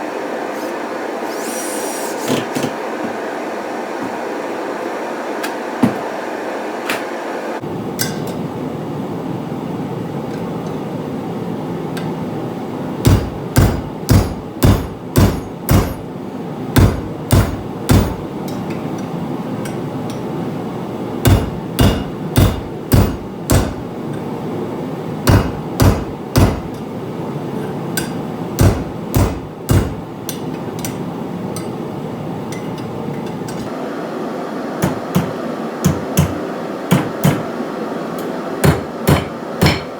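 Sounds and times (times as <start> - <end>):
hammer striking hot steel: 8.0 - 8.5, 13.0 - 16.2, 16.8 - 20.3, 21.2 - 23.9, 25.2 - 26.9, 27.9 - 31.9, 34.8 - 37.6, 38.2 - 39.9.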